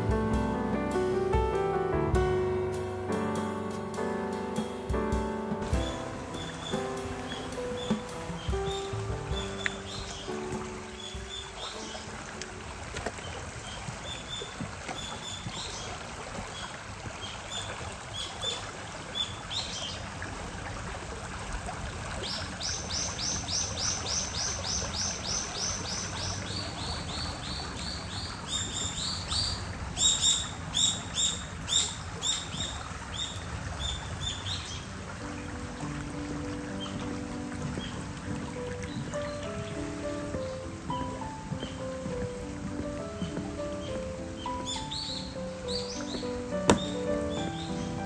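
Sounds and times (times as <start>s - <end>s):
shallow stream running: 0.0s - 48.0s
bird chirping: 5.7s - 12.1s, 22.3s - 34.9s, 43.2s - 48.0s.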